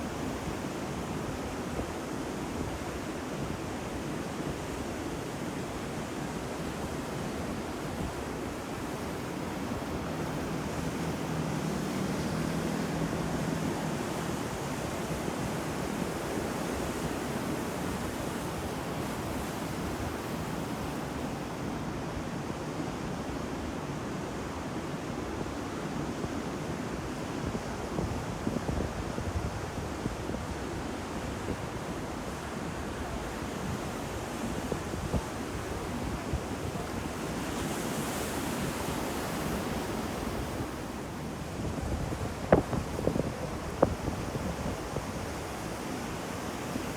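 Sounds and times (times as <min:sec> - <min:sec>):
ocean waves breaking: 0:06.4 - 0:22.0, 0:32.1 - 0:46.9
wind on microphone: 0:27.4 - 0:46.9.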